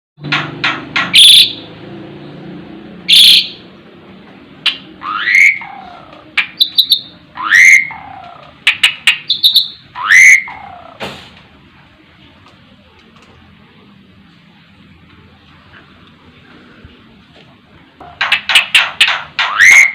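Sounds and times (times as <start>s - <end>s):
starling harsh scratchy calls: 1.1s - 1.7s, 4.7s - 11.0s, 18.2s - 19.9s
rising whistled bird calls: 1.2s - 1.7s, 3.1s - 3.6s, 4.7s - 11.0s, 19.4s - 19.9s.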